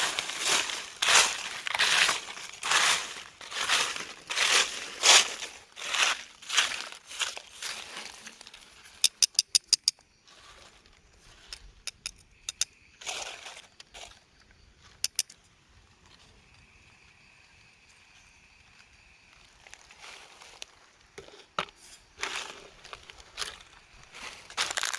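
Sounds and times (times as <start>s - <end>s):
sharp clicks and snaps: 9.0s - 10.0s, 11.5s - 12.8s.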